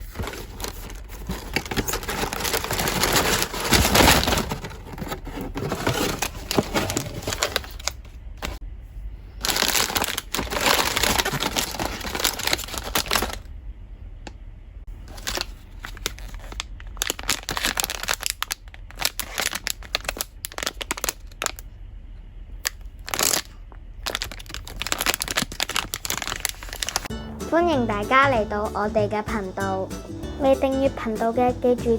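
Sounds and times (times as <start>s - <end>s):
packaging crinkling and rustling: 0.0s - 8.6s, 9.4s - 13.5s, 15.0s - 21.6s, 22.6s - 27.1s.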